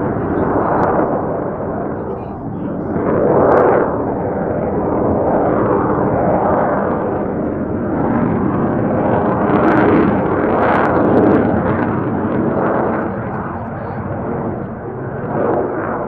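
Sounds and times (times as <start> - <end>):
jet engine crackles: 0.0 - 16.0
jet engine roar: 0.0 - 16.0.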